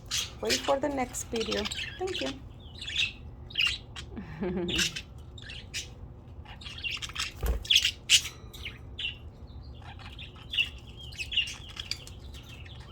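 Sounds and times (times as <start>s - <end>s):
budgerigars chirping and chattering: 0.0s - 12.9s.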